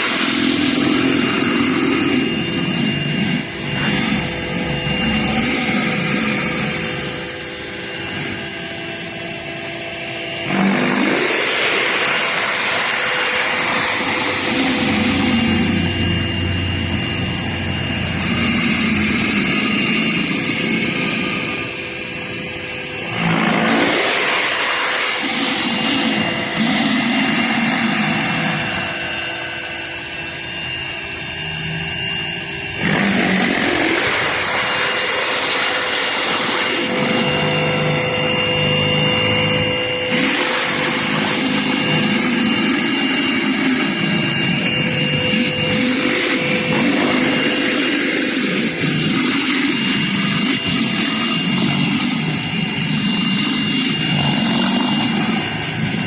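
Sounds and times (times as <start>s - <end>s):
pressure washer motor hum: 0.0s - 56.0s.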